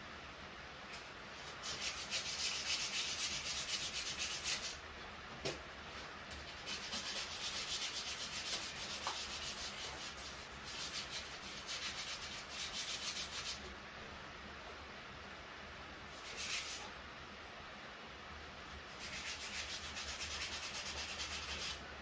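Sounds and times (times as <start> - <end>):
sandpaper rubbing on metal: 1.4 - 4.8, 6.5 - 13.7, 16.2 - 16.9, 18.9 - 21.8.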